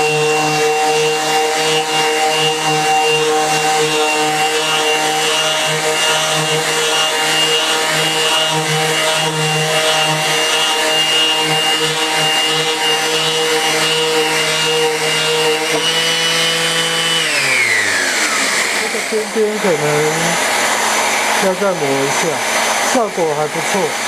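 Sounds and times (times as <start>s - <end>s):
sandpaper rubbing on wood: 0.0s - 17.5s, 18.8s - 20.6s
dust extractor running: 0.0s - 24.0s
orbit sander motor hum: 0.0s - 24.0s.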